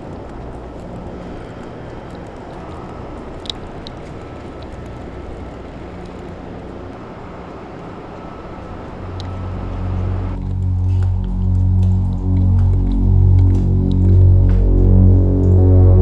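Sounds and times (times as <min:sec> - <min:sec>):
faint clicks: 0:00.0 - 0:07.0
low rumbling background noise: 0:00.0 - 0:16.0.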